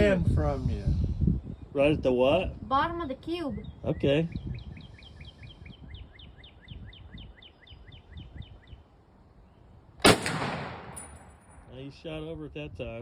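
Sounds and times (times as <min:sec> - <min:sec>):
rifle shot echoing: 0:10.0 - 0:11.7.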